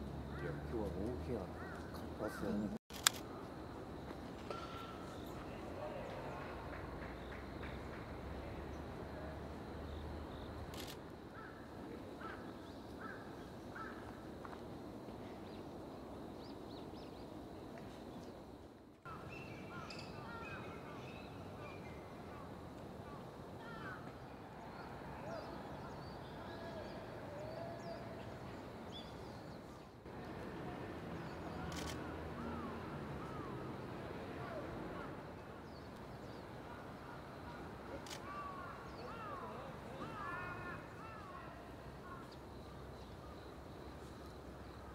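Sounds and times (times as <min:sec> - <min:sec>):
outdoor background noise: 0:00.0 - 0:44.9
bird calling: 0:37.0 - 0:42.3.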